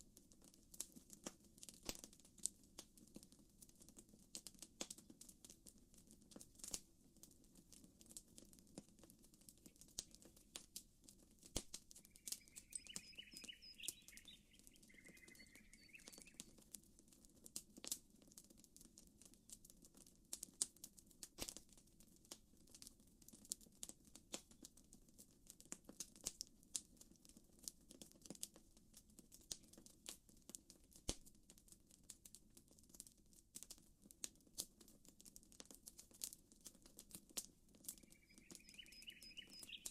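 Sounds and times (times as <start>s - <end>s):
campfire crackling: 6.3s - 6.8s, 7.6s - 22.9s
birds chirping: 12.0s - 16.5s, 37.9s - 39.9s.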